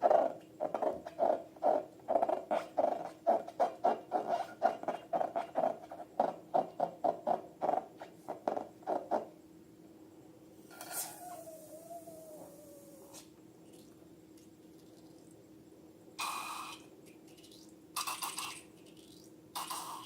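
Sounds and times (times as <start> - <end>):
rhythmic squeaky rubbing strokes: 0.0 - 7.2.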